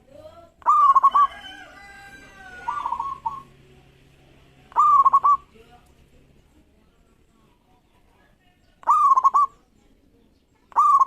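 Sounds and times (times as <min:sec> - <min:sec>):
dove cooing: 0:00.6 - 0:01.5, 0:02.2 - 0:03.6, 0:04.7 - 0:05.5, 0:08.8 - 0:09.6, 0:10.7 - 0:11.0.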